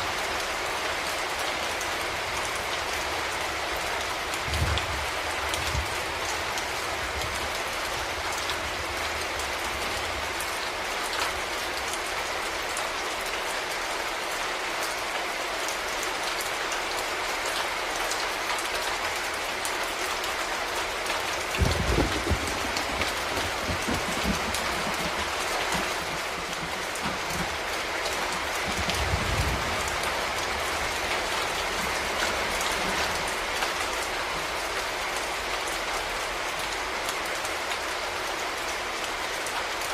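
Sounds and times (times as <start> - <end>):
rain falling on a surface: 0.0 - 39.9
low rumbles: 21.5 - 30.1.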